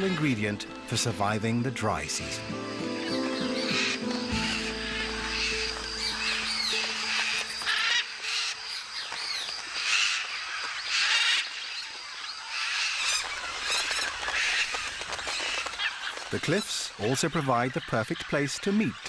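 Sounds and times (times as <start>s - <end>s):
parrots squawking: 2.7s - 11.5s.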